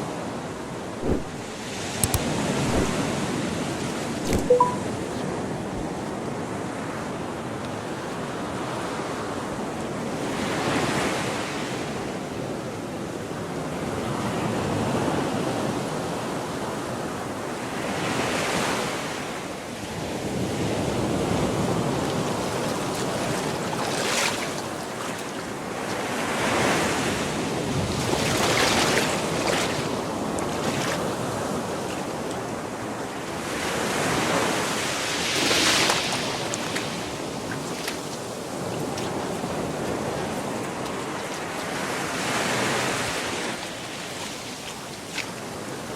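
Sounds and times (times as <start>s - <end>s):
waves breaking on beach: 0.0s - 45.9s
wind on microphone: 0.9s - 4.5s.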